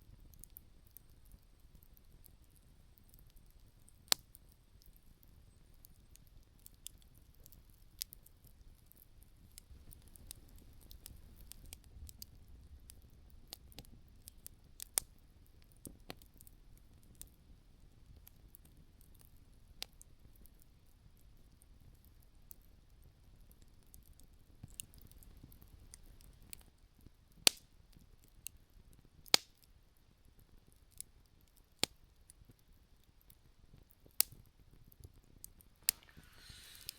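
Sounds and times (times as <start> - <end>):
campfire embers crackling: 0.0 - 36.9
burning wood popping: 35.5 - 36.9.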